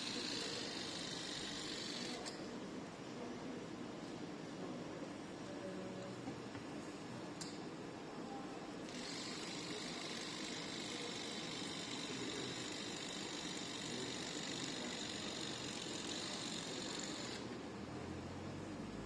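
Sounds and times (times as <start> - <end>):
electric hair device hissing: 0.0 - 2.3, 8.9 - 17.5.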